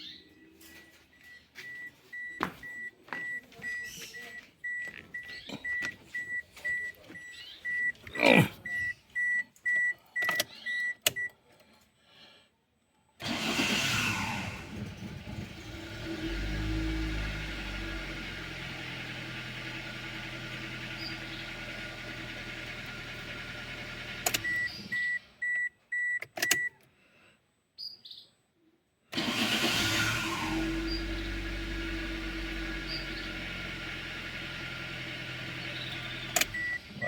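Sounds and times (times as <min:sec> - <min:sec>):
car warning chime beeping: 0:00.0 - 0:11.4, 0:24.0 - 0:26.8, 0:30.8 - 0:37.0
car starter cranking: 0:13.2 - 0:25.2, 0:29.1 - 0:37.0
car engine idling: 0:13.2 - 0:25.4, 0:29.2 - 0:37.0.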